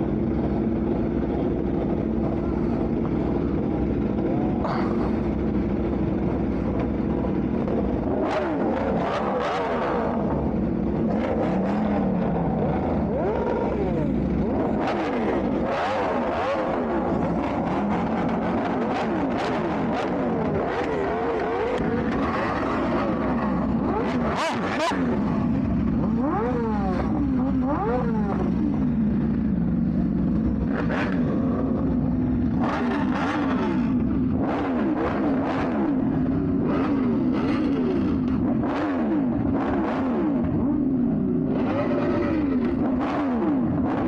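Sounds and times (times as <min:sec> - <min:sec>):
car and motorcycle engines revving: 0:00.0 - 0:44.0
steady engine drone: 0:00.0 - 0:44.0.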